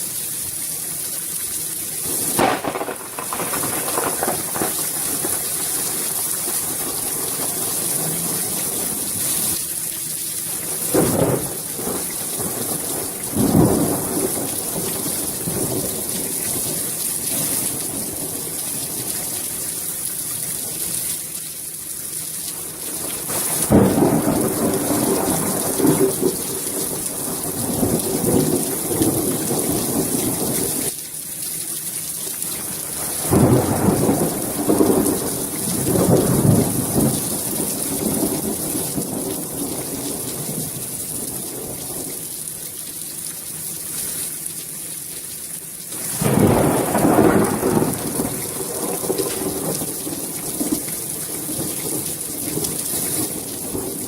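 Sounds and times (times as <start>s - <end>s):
rain hissing down: 0.0s - 54.0s
long rolls of thunder: 2.2s - 9.0s, 10.9s - 16.4s, 23.3s - 30.7s, 33.2s - 40.5s, 46.2s - 50.8s.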